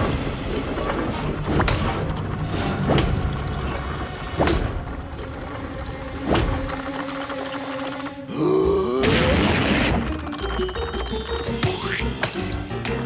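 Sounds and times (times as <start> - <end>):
cartoon music: 8.3 - 13.0.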